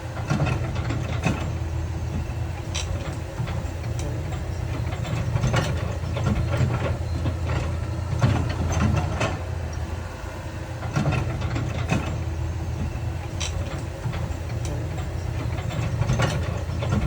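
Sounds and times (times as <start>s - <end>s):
diesel machinery droning: 0.0s - 17.0s.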